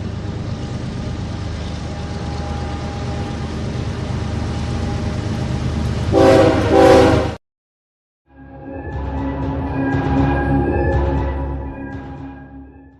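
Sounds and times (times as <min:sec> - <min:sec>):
train rumbling: 0:00.0 - 0:07.4, 0:08.3 - 0:12.9
train horn blasts: 0:06.1 - 0:07.4.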